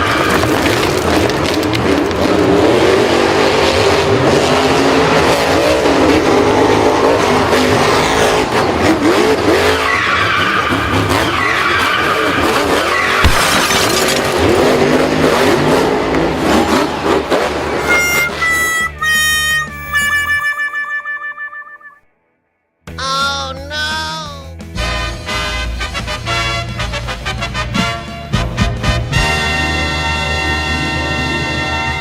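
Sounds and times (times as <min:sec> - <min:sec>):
vehicle engines revving: 0:00.0 - 0:20.2
tyres skidding and squealing: 0:00.0 - 0:22.0.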